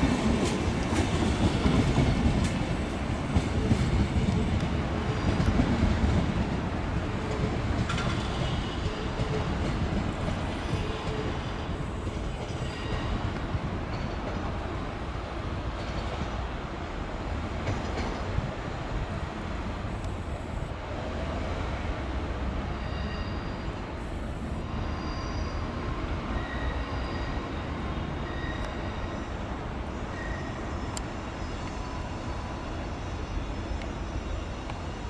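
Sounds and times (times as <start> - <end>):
train rolling low rumble: 0.0 - 35.0
high-pitched wheel squeals: 22.7 - 23.8, 24.7 - 29.4.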